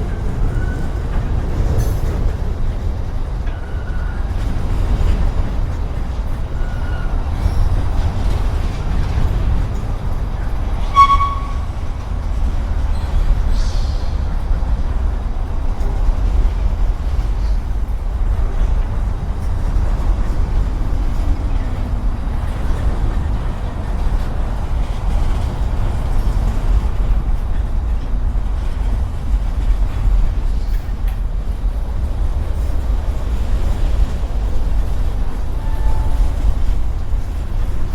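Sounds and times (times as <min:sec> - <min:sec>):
high wheel squeal: 0:00.0 - 0:01.3, 0:06.5 - 0:08.0, 0:10.4 - 0:11.9
freight train rumbling past: 0:00.0 - 0:37.9
wheels clicking on rail: 0:00.0 - 0:37.9.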